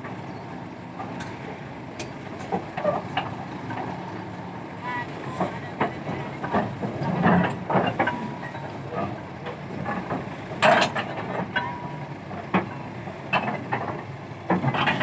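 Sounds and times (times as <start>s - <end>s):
engine running: 0.0s - 15.0s
metal clanks and knocks: 5.4s - 15.0s.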